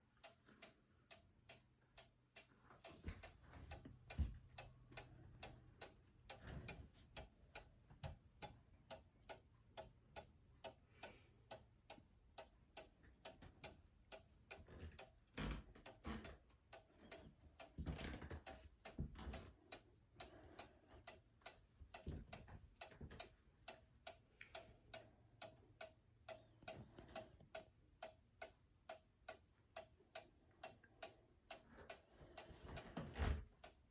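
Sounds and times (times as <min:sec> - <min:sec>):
clock ticking: 0:00.0 - 0:33.9.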